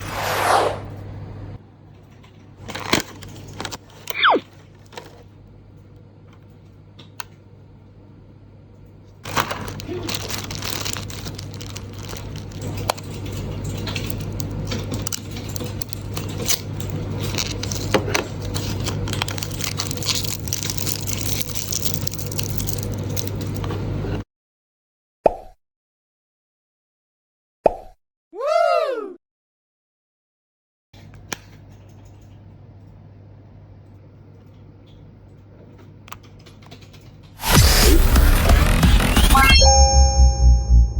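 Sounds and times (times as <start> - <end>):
packaging rustling and crinkling: 9.2 - 23.8.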